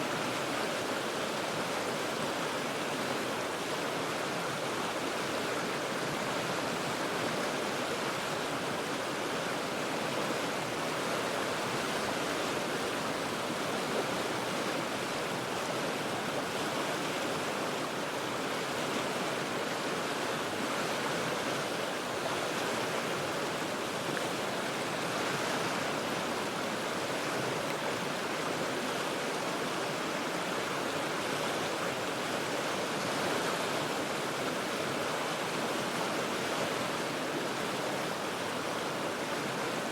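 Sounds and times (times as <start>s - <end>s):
river rapids rushing over rocks: 0.0s - 39.9s.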